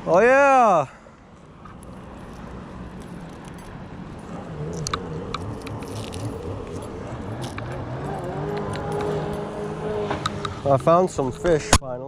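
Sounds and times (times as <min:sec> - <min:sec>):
boat motor droning: 0:01.4 - 0:11.6
sharp clicks and rattles: 0:01.6 - 0:11.2.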